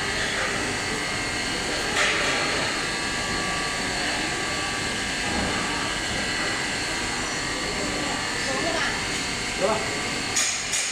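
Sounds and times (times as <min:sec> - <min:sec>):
furnace machine noise: 0:00.0 - 0:10.9.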